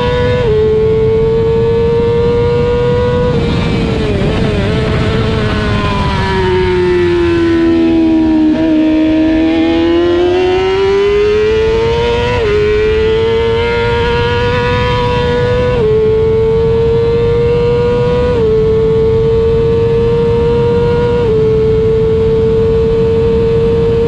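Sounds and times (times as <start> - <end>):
racing motorcycle engine revving: 0.0 - 24.0
wind on microphone: 0.0 - 24.0.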